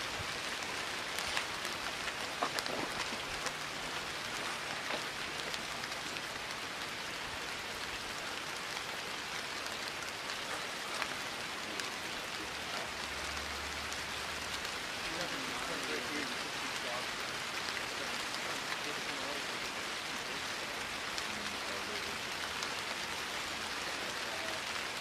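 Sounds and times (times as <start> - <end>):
steady rain hiss: 0.0 - 25.0
single raindrops ticking: 0.3 - 7.1.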